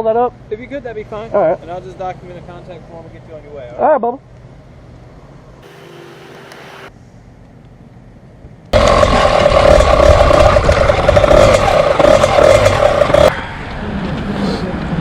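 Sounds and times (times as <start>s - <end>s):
vehicle engine running: 8.7s - 13.4s
wind noise rushing: 8.8s - 13.3s.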